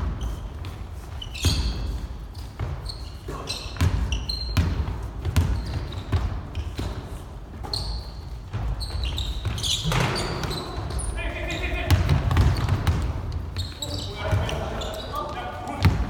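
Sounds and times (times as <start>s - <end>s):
sneakers squeaking on floor: 0.0s - 16.0s
basketball bouncing: 3.8s - 7.0s, 11.8s - 13.7s, 15.8s - 16.0s.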